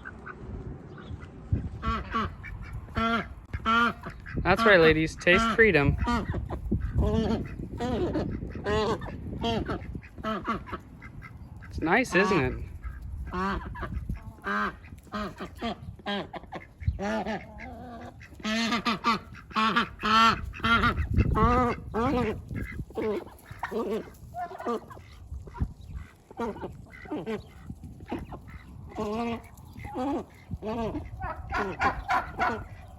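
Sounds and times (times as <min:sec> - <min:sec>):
ducks quacking: 0:00.0 - 0:32.9.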